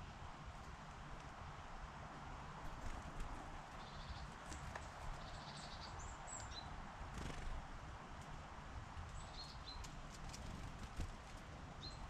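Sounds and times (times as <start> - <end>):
outdoor hiss and rumble: 0.0 - 12.0
small birds chirping: 2.6 - 7.8, 9.0 - 12.0.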